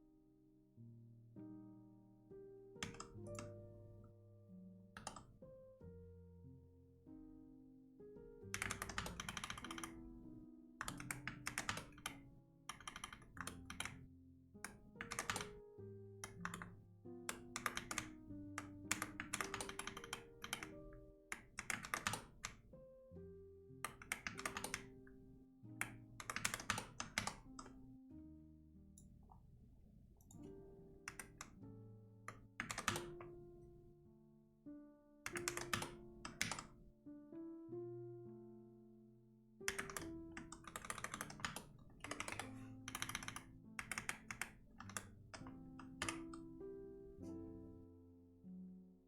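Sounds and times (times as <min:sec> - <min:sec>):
soft background music: 0:00.1 - 0:49.0
computer keyboard typing: 0:02.8 - 0:03.6, 0:05.0 - 0:05.3, 0:08.5 - 0:10.1, 0:10.8 - 0:14.0, 0:14.6 - 0:15.6, 0:16.2 - 0:22.6, 0:23.9 - 0:25.2, 0:25.8 - 0:27.8, 0:31.1 - 0:31.6, 0:32.3 - 0:33.6, 0:35.3 - 0:36.8, 0:39.6 - 0:46.5.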